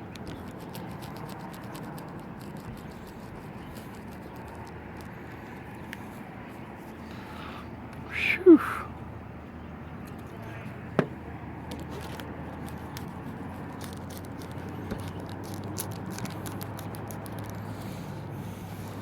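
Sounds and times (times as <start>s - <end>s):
adhesive crackling clicks: 11.7s - 17.7s.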